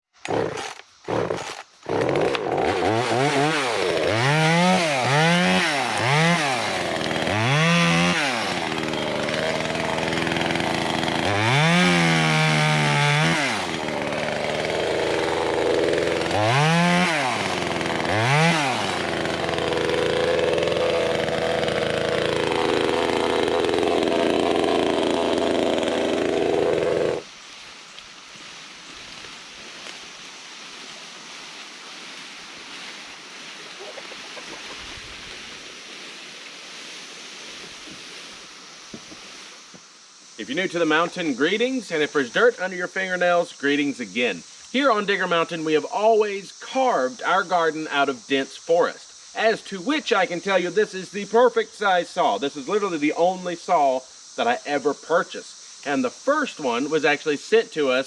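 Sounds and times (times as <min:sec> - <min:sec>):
chainsaw revving: 0:00.2 - 0:27.3.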